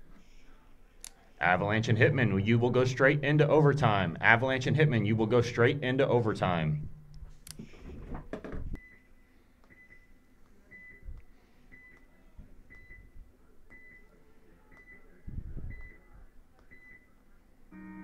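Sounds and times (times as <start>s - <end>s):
faint low thumps: 15.2s - 16.0s.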